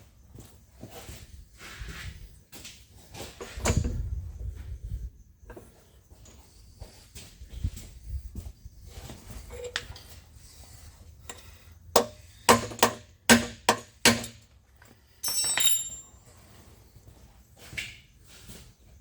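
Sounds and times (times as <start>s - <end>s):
rattling metallic scrape with ring: 9.4s - 10.1s
sharp metal-on-metal knocks: 12.0s - 14.4s.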